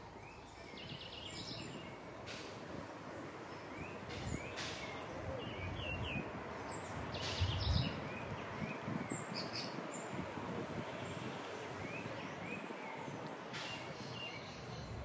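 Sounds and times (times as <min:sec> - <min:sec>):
small birds chirping: 0:00.0 - 0:02.6
outdoor background hiss: 0:00.0 - 0:15.0.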